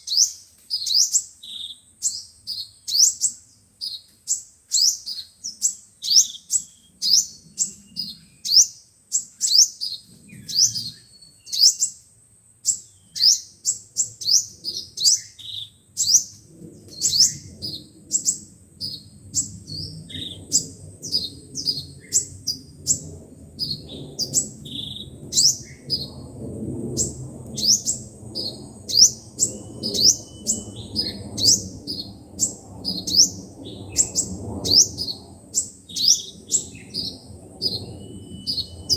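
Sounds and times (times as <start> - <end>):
sunbirds calling: 0.0 - 38.9.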